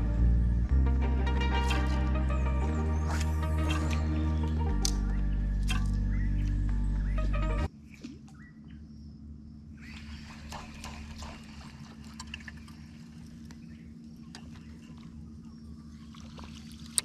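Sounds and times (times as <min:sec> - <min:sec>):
background music: 0:00.0 - 0:07.7
steady low hum: 0:00.0 - 0:17.0
water lapping: 0:09.8 - 0:17.0.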